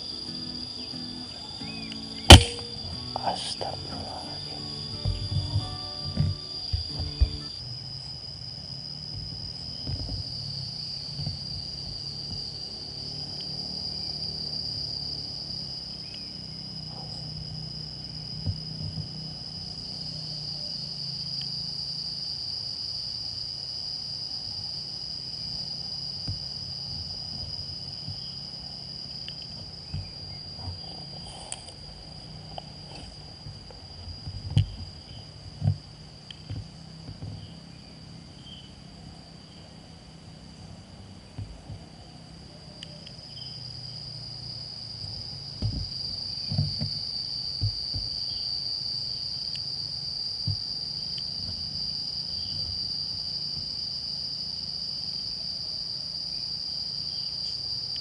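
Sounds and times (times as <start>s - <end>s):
insects droning: 0.0s - 58.0s
soft knocks: 4.9s - 7.5s, 9.1s - 10.4s, 11.1s - 12.4s, 18.4s - 19.2s, 29.6s - 31.4s, 33.0s - 37.6s, 41.4s - 41.8s, 45.6s - 48.2s.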